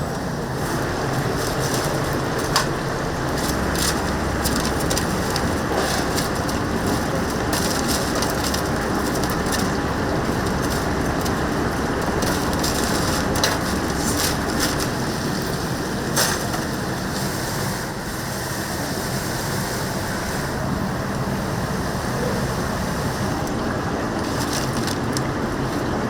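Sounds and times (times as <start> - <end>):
chicken sizzling: 0.0 - 17.9
sharp crackles and pops: 0.5 - 17.3.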